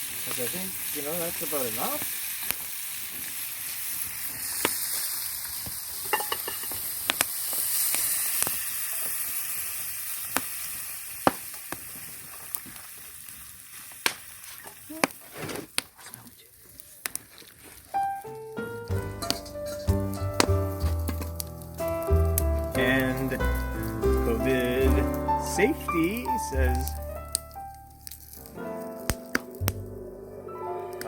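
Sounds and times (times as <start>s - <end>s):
prawns sizzling in butter: 0.0s - 29.9s
sharp pops and clicks: 4.5s - 5.8s, 6.4s - 9.2s, 10.2s - 16.0s, 17.0s - 17.5s, 18.9s - 29.9s.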